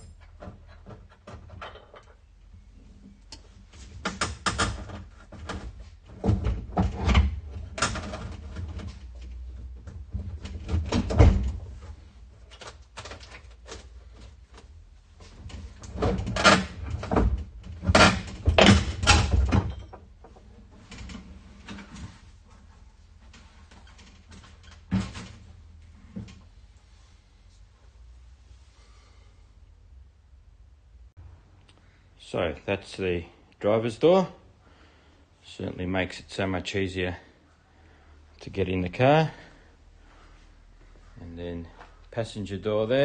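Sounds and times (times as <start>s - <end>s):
metallic clanks and knocks: 0.0s - 2.3s, 15.5s - 22.0s.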